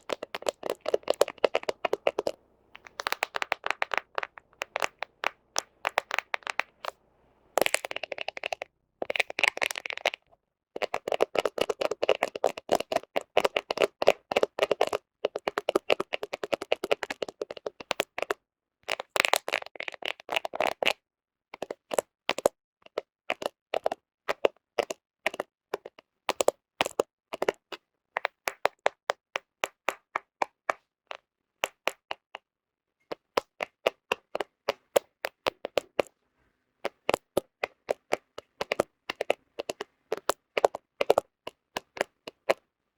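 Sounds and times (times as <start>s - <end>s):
fingernails tapping on phone: 0.0s - 7.0s, 33.1s - 36.1s, 36.9s - 42.6s.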